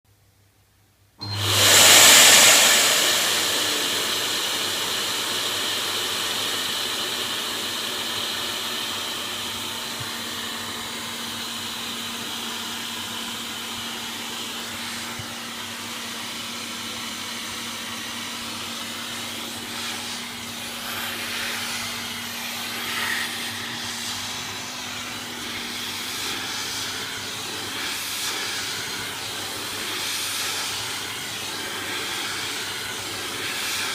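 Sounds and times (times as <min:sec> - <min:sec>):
vacuum cleaner running: 0:01.2 - 0:33.9.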